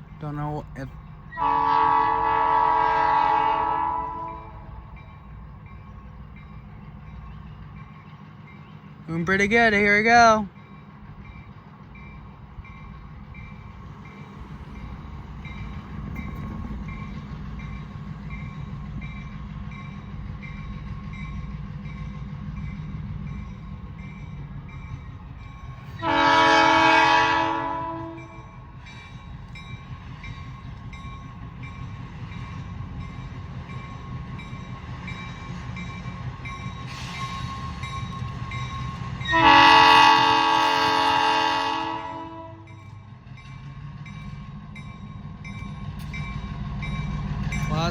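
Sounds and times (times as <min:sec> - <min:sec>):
diesel locomotive rumbling: 0:00.0 - 0:47.9
locomotive chime air horn: 0:01.4 - 0:05.0, 0:26.0 - 0:28.5, 0:39.3 - 0:42.8.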